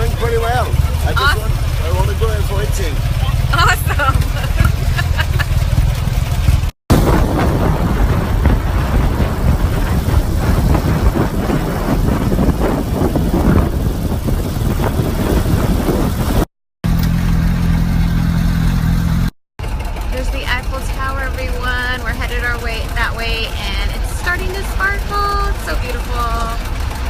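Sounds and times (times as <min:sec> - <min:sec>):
motorcycle engine running: 0:00.0 - 0:27.0
wind noise on microphone: 0:06.9 - 0:16.5.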